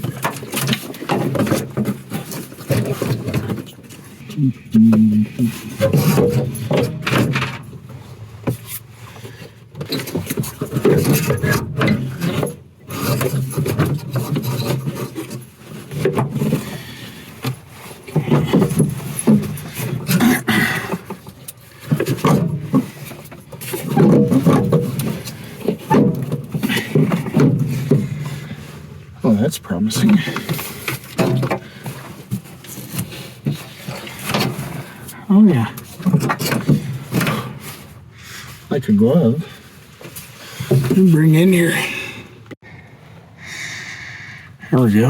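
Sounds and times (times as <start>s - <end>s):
box scraping and knocking on car body: 0.0s - 3.9s, 5.8s - 29.4s, 30.1s - 35.0s.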